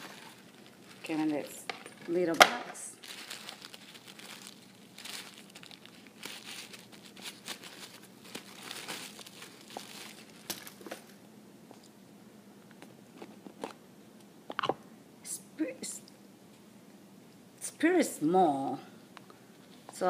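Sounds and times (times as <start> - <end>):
paper packaging crinkling: 0.0 - 11.2.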